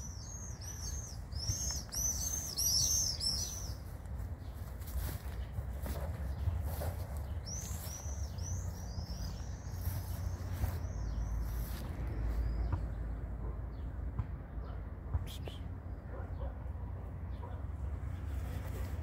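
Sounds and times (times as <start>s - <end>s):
small bird chirping: 0.0s - 3.9s, 6.7s - 11.8s.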